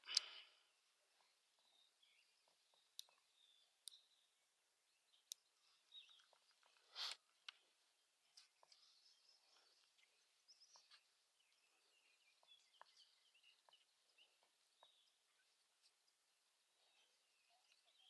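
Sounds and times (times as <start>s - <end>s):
distant birdsong chirps: 0.0s - 18.0s
light clicks: 2.5s - 4.0s.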